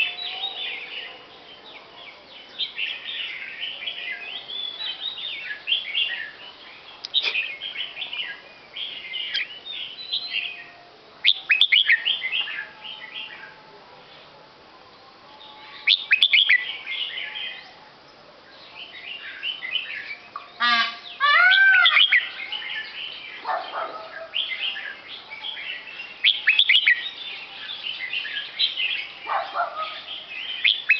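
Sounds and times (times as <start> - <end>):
small birds chirping and twittering: 0.0 - 30.9
loud arching bird call: 20.6 - 22.6.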